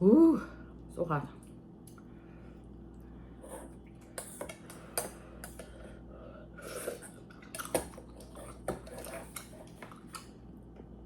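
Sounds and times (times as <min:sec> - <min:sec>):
soft chewing: 0:06.6 - 0:10.5.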